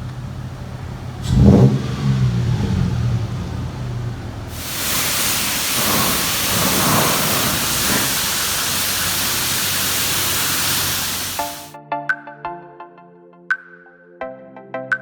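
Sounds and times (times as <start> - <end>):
high-pressure water spraying: 4.5 - 11.7.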